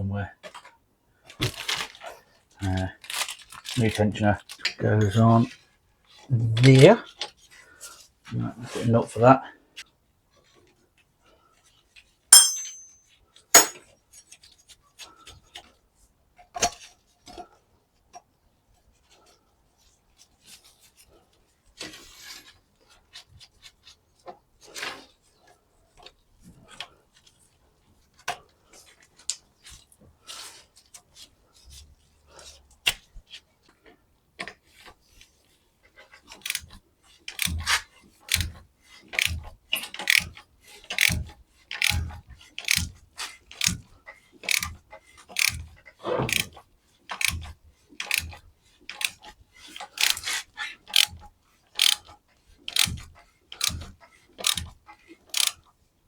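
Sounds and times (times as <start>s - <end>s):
metal tools clinking: 12.4s - 13.0s, 13.6s - 13.8s
socket ratchet clicking: 13.6s - 13.8s, 40.0s - 40.3s, 41.8s - 42.0s, 42.6s - 42.9s, 44.5s - 44.7s, 45.4s - 45.6s, 50.0s - 50.2s, 51.8s - 52.0s, 52.8s - 53.0s, 54.4s - 54.7s.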